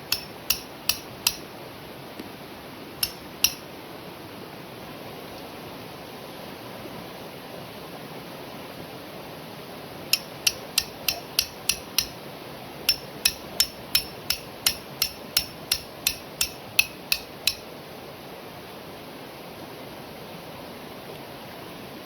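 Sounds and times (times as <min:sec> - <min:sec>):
ringing hammer strikes on metal: 0:00.0 - 0:01.5, 0:03.0 - 0:03.7, 0:10.2 - 0:12.2, 0:12.9 - 0:17.7.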